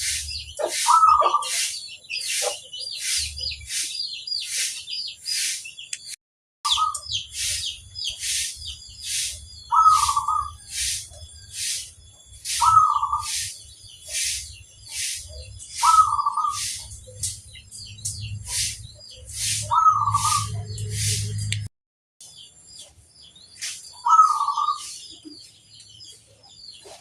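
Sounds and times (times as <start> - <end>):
sharp high chirps: 6.7 - 20.6.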